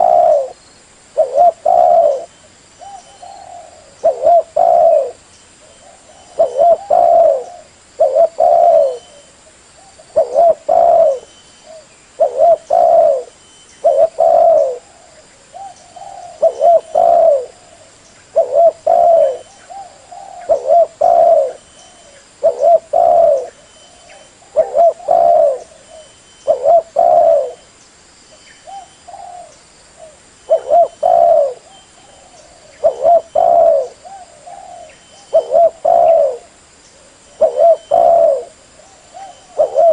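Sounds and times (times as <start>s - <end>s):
dove cooing: 0.0s - 0.6s, 1.2s - 27.6s, 28.6s - 39.9s.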